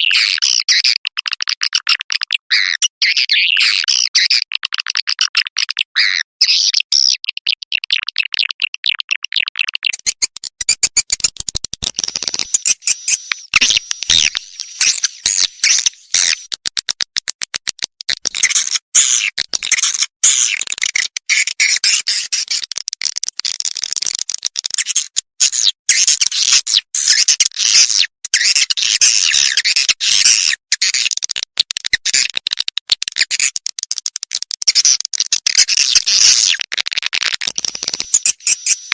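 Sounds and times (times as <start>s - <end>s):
swiftlets twittering: 12.0s - 16.5s.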